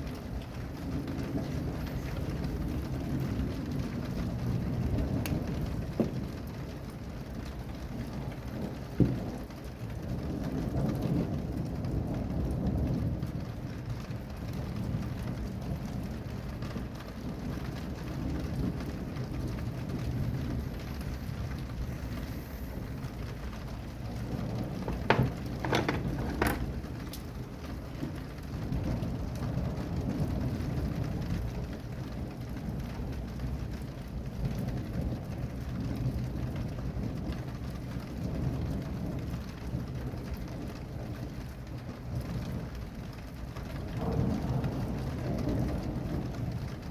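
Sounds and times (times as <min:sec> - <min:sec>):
rain falling: 0:00.0 - 0:46.9
thunder rumbling: 0:00.0 - 0:46.9.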